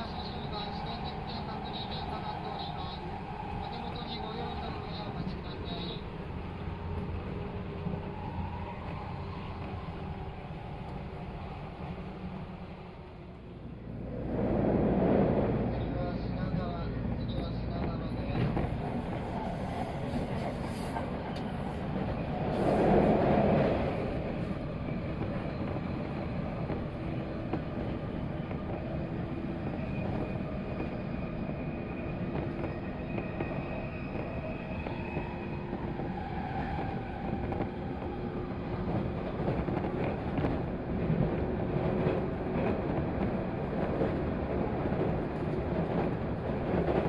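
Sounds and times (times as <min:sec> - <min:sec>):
electric train rail rumble: 0:00.0 - 0:47.0.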